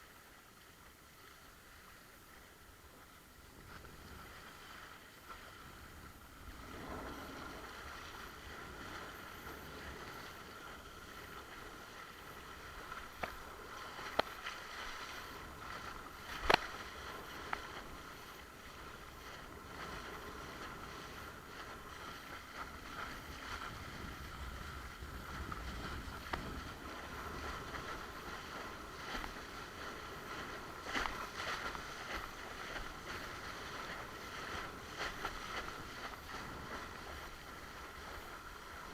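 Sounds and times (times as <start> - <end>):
water rushing and splashing: 0.0 - 38.9
wind on microphone: 2.4 - 38.9.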